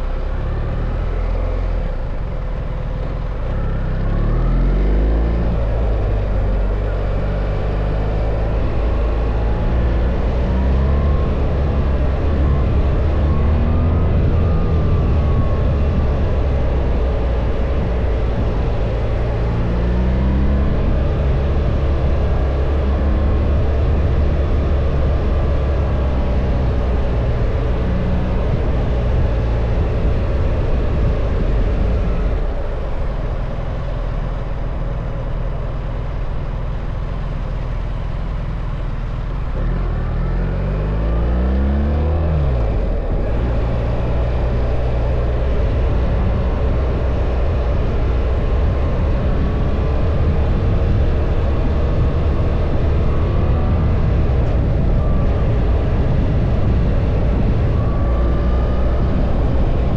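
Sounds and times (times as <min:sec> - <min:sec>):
wind rumble: 0:00.0 - 0:59.9
motorcycle engine revving: 0:01.0 - 0:59.9.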